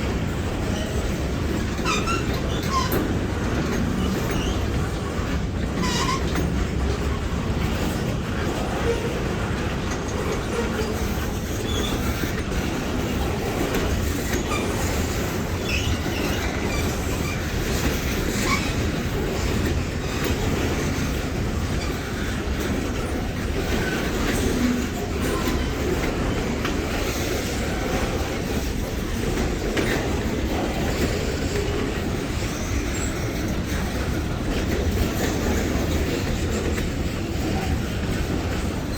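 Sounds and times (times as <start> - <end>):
train wheels rumbling on rail: 0.0 - 38.9
wheel squeals: 0.6 - 5.1, 5.7 - 7.2, 10.0 - 22.4, 23.0 - 33.8.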